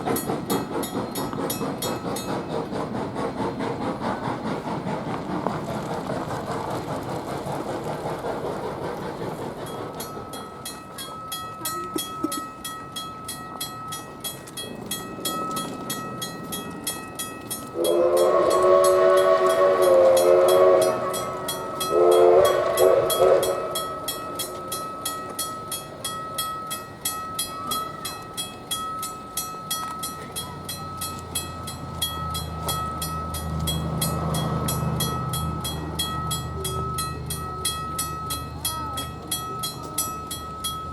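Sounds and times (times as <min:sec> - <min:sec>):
railroad crossing bell ringing: 0:00.0 - 0:03.0, 0:09.5 - 0:40.9
diesel locomotive rumble: 0:00.0 - 0:40.9
locomotive horn blasts: 0:17.8 - 0:23.8.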